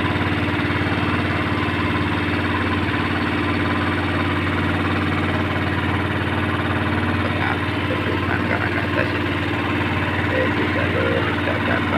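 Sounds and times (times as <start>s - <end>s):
boat engine idling: 0.0s - 11.9s.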